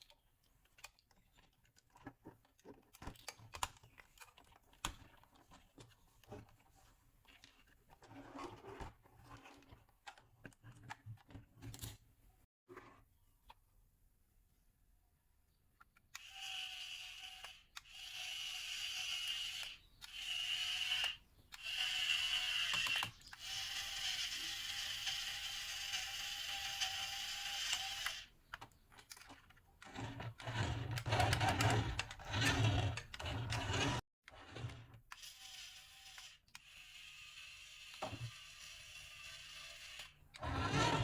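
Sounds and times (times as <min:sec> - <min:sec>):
toy electric motor whirring: 0:16.1 - 0:28.4, 0:29.8 - 0:41.0.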